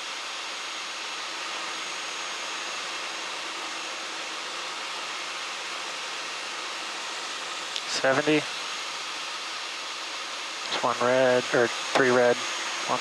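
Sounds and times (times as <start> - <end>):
faint high whine: 0.0 - 13.0
aircraft engine and airflow rush: 7.8 - 8.8, 10.5 - 13.0.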